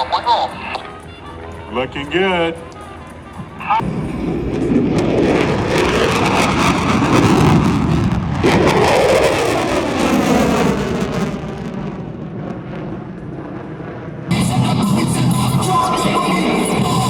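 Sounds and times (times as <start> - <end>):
airplane engine passing low: 0.0 - 17.0.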